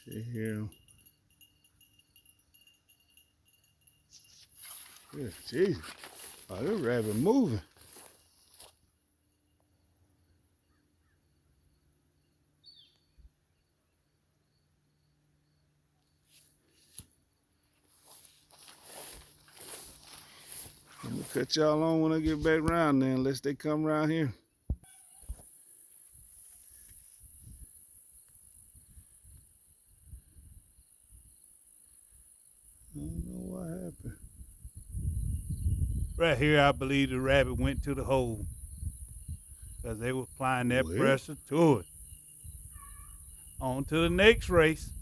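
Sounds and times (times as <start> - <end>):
faint outdoor ambience: 0.0 - 45.0
insects hissing: 1.4 - 8.9, 17.8 - 22.6, 24.4 - 45.0
wind rumble on microphone: 33.0 - 39.9, 42.4 - 45.0.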